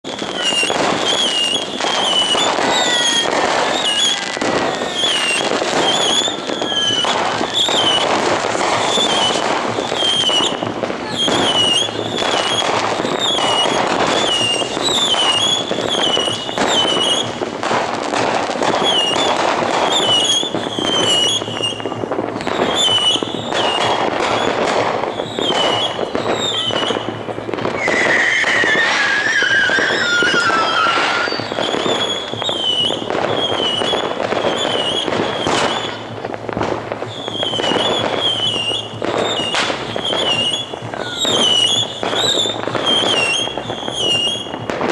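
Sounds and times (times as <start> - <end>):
fireworks crackling and banging: 0.0 - 44.9
whistle falling in pitch: 27.8 - 32.9.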